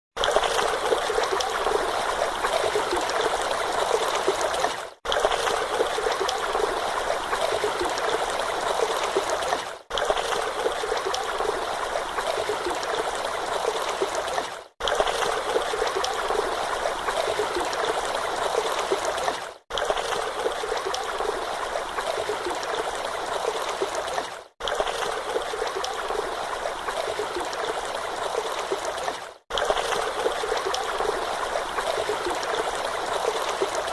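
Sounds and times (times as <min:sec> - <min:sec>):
trickling stream: 0:00.1 - 0:33.9.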